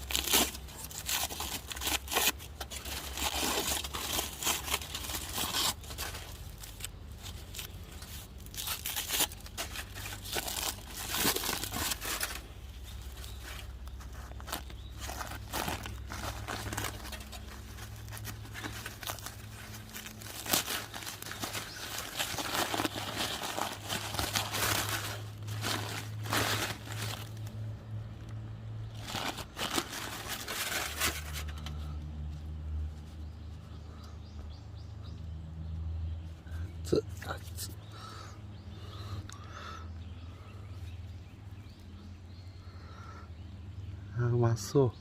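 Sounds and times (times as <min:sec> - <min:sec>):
aluminium foil crinkling and tearing: 0:00.0 - 0:27.6, 0:28.8 - 0:31.8.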